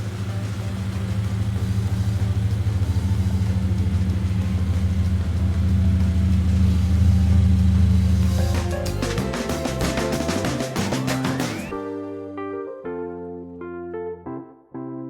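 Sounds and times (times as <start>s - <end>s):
car engine humming: 0.0s - 11.8s.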